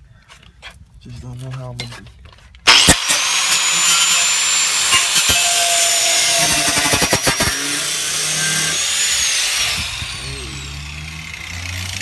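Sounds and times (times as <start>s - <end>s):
power tool cutting metal: 2.7s - 12.0s.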